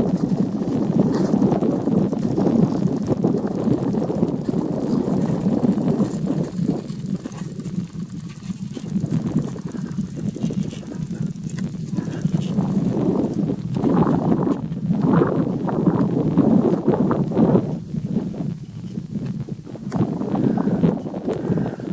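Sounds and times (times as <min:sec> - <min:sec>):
jet engines rumbling: 0:00.0 - 0:21.9.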